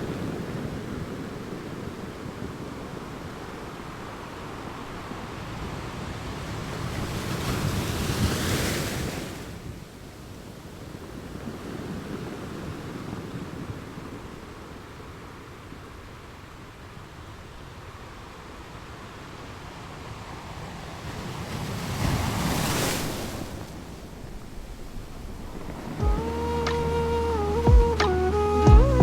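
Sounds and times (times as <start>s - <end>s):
sea waves washing: 18.0s - 28.9s
wind on microphone: 20.2s - 29.0s.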